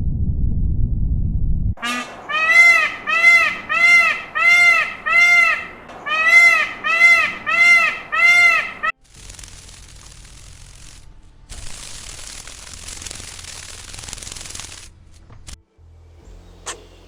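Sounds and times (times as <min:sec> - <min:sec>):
animal calling: 0:01.8 - 0:08.9.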